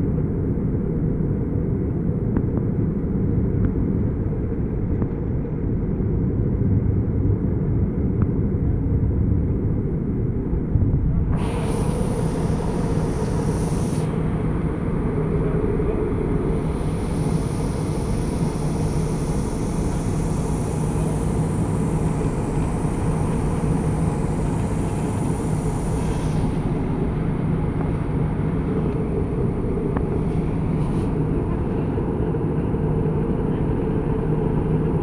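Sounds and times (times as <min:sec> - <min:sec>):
aircraft cabin engine and airflow noise: 0:00.0 - 0:35.0
faint high whine: 0:11.2 - 0:34.7.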